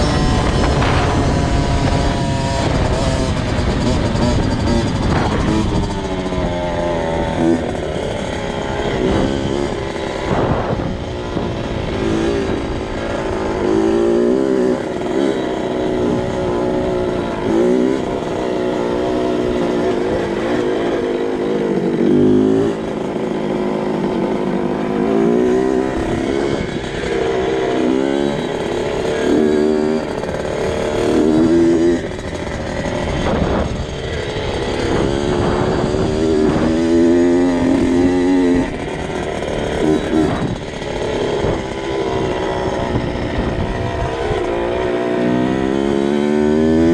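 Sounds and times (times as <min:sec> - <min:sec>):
two-stroke engine revving: 0:00.0 - 0:46.9.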